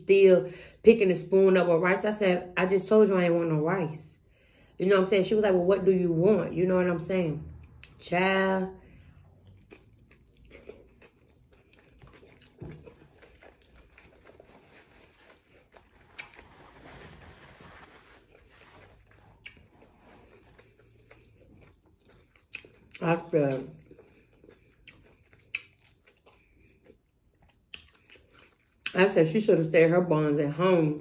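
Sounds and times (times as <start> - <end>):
person biting and chewing: 9.2 - 16.8, 18.8 - 23.1, 23.8 - 29.0
paper napkin rustling: 14.1 - 19.2.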